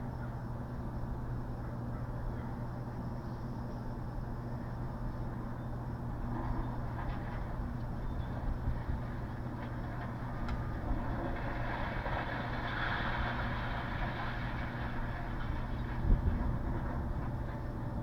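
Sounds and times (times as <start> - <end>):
diesel engine running: 5.3 - 18.0.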